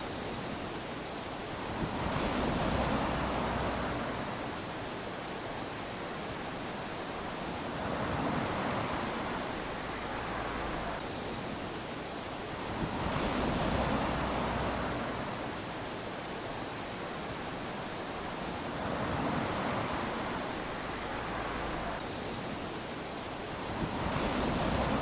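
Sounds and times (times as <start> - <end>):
small waves lapping on sand: 0.0 - 25.0.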